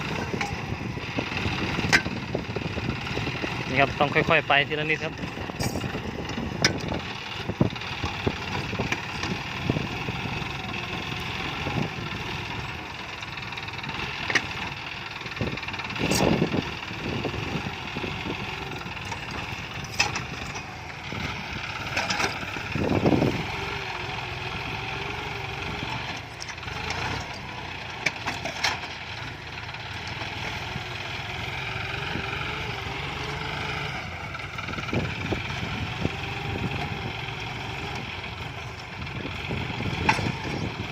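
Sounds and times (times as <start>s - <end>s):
tractor diesel engine running: 0.0s - 40.9s
plough knocks and thumps: 1.6s - 2.3s, 19.0s - 20.7s, 39.8s - 40.7s.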